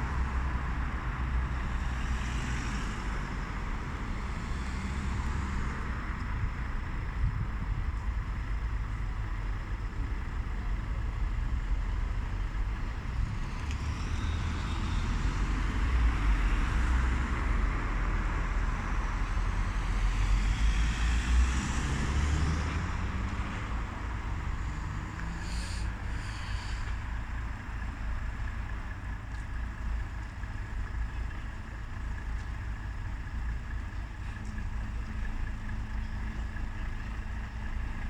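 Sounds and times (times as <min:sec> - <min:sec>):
vehicle rumbling past: 0:11.5 - 0:29.3.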